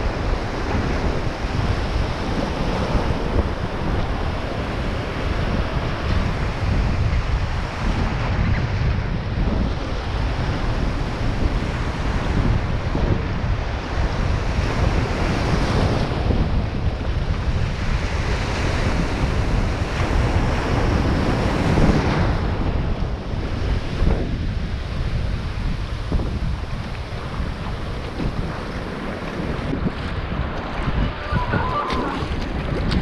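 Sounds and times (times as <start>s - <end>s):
sea waves washing: 0.0s - 33.0s
wind buffeting microphone: 0.0s - 33.0s.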